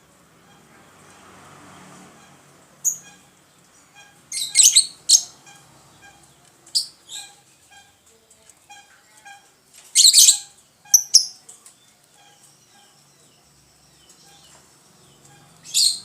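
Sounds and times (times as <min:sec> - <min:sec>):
faint bird chirping: 0:02.2 - 0:16.0
lovebirds calling: 0:02.2 - 0:16.0
shrill bird calls: 0:03.9 - 0:07.8, 0:15.2 - 0:16.0.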